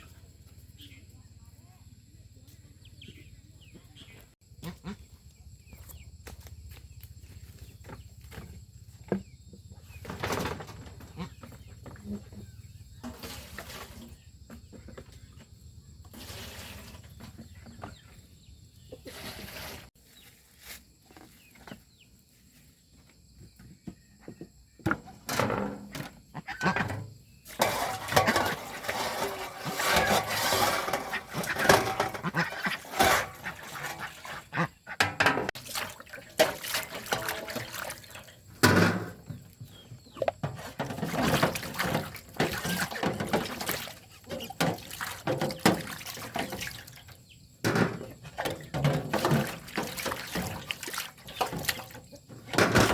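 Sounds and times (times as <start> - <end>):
water splashing in a sink: 27.5 - 34.6, 35.5 - 47.3, 48.2 - 52.9
knocks and clatter: 35.0 - 35.6.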